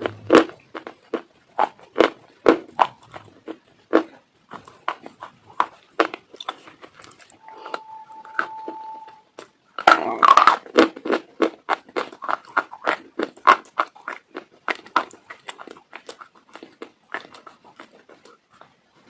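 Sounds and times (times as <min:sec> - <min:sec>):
dog chewing crunchy food: 0:00.0 - 0:07.4, 0:09.8 - 0:18.8
thin high tone: 0:07.4 - 0:09.3.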